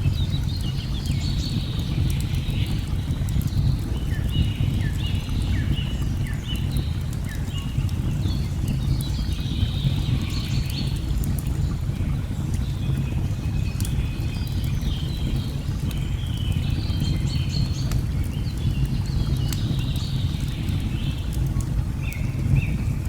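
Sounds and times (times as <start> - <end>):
log fire crackling: 6.0 - 23.0.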